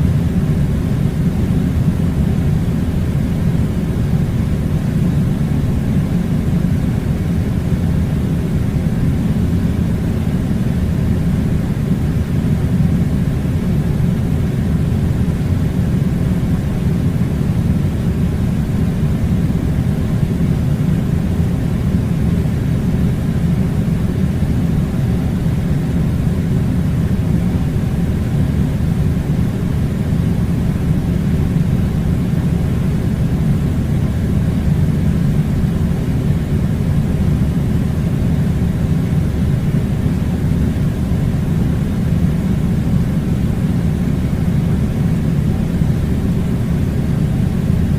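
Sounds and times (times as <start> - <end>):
air conditioner running: 0.0 - 47.9.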